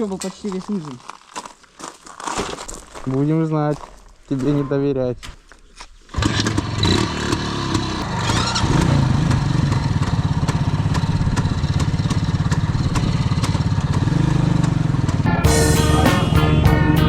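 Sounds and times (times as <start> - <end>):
motorcycle engine running: 6.2 - 17.0.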